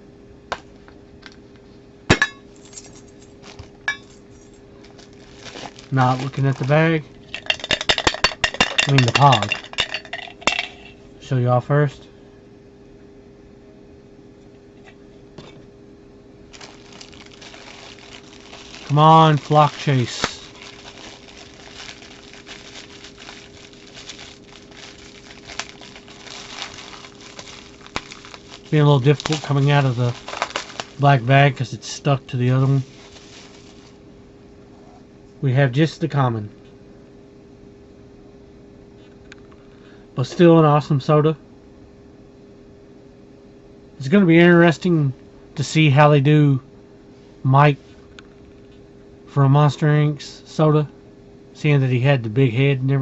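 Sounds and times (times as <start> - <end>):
plastic bag crinkling: 2.6 - 3.8, 4.4 - 10.2, 16.5 - 31.6, 32.5 - 34.0.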